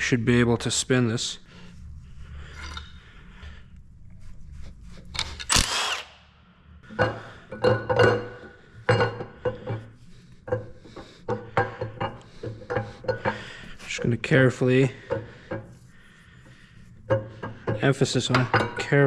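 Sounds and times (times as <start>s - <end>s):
power tool whirring: 5.2s - 6.2s
metallic clanks and rattles: 6.8s - 14.1s, 17.0s - 19.0s.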